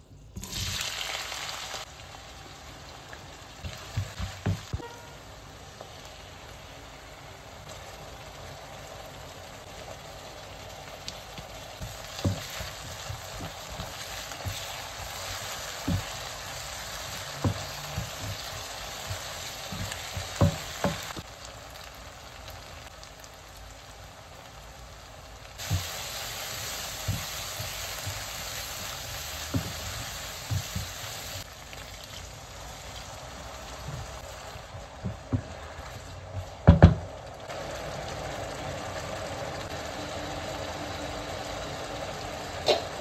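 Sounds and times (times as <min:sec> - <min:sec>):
onions sizzling in hot oil: 0:00.2 - 0:43.0
wooden spatula knocking a pan: 0:03.6 - 0:05.0, 0:11.4 - 0:21.2, 0:25.6 - 0:26.0, 0:26.9 - 0:31.1, 0:35.0 - 0:35.6, 0:36.4 - 0:37.1.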